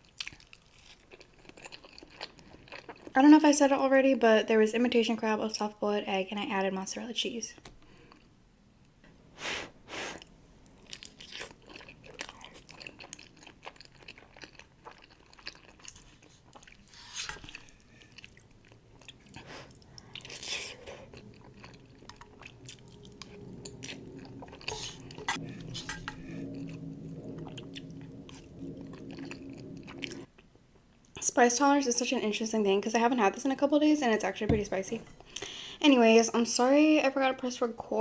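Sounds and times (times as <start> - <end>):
low steady hum: 0.0 - 38.0
chewing and biting noodles: 0.1 - 3.2, 10.8 - 25.9.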